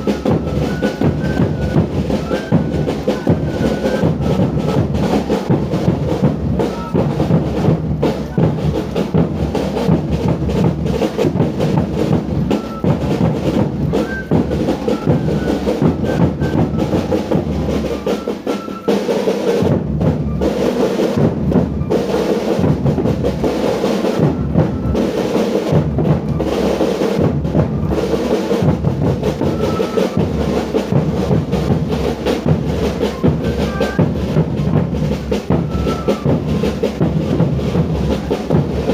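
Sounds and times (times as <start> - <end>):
drum-led music: 0.0 - 38.9.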